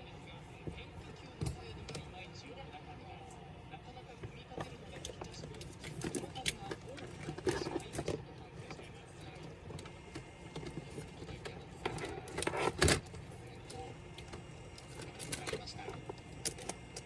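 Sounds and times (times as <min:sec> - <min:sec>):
laptop parts and tools clattering: 0:04.6 - 0:17.0.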